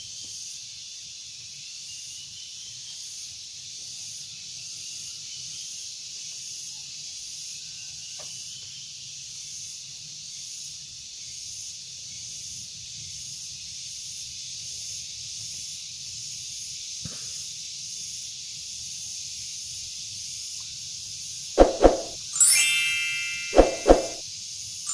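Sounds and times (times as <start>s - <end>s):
ringing metallic ding: 22.4s - 24.2s.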